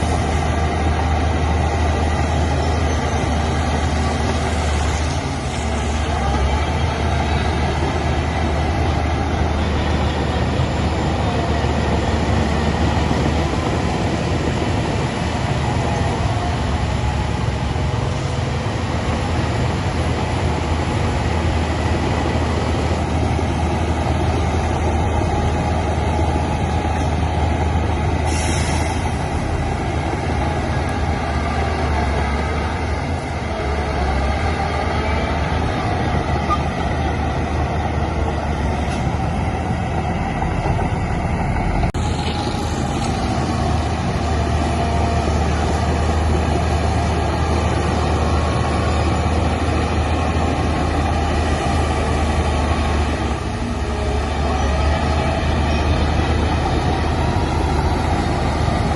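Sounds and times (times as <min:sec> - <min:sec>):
diesel engine drone: 0:00.0 - 0:58.9
short hiss: 0:28.3 - 0:29.1.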